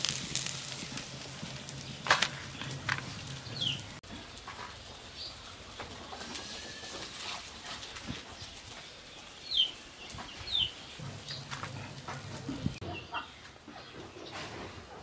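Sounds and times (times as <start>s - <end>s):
cooking utensils clicking and knocking: 1.8s - 5.1s.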